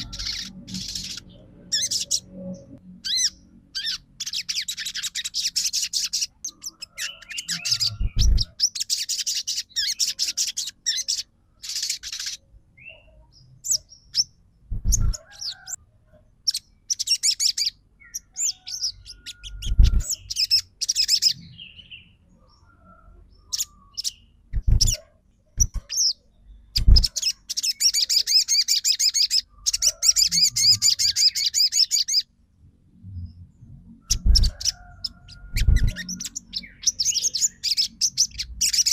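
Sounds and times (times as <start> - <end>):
songbird chattering trills: 0.0 - 2.3, 3.0 - 13.0, 16.5 - 21.8, 26.8 - 32.2
dull low thumps: 8.0 - 8.5, 14.7 - 15.2, 24.5 - 25.0.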